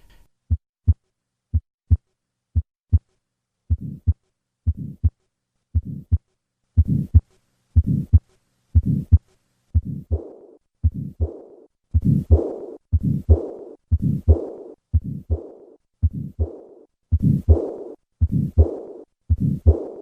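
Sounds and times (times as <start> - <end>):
heartbeat lub-dub: 0.5 - 3.1, 3.7 - 5.2, 5.8 - 6.2, 6.8 - 8.2, 8.8 - 20.0
heart murmur: 3.7 - 5.2, 5.8 - 6.2, 6.8 - 7.2, 7.8 - 8.2, 8.8 - 9.2, 9.8 - 20.0.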